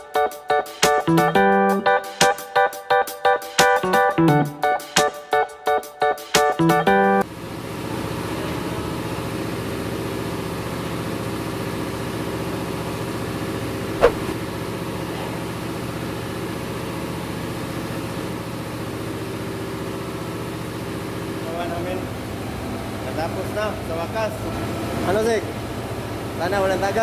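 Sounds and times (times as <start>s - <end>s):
engine-room machinery running: 7.2s - 27.0s.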